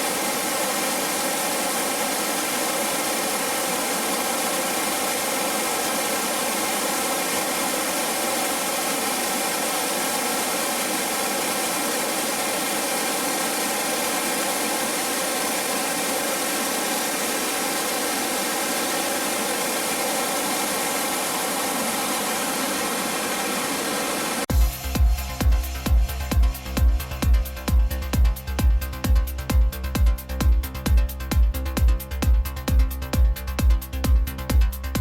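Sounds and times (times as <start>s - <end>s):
waterfall roaring: 0.0s - 24.5s.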